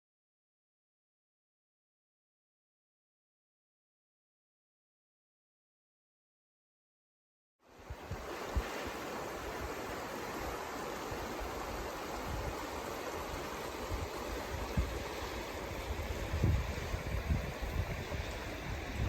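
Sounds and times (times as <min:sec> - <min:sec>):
creek water running: 0:07.6 - 0:19.0
wind buffeting microphone: 0:11.1 - 0:19.0.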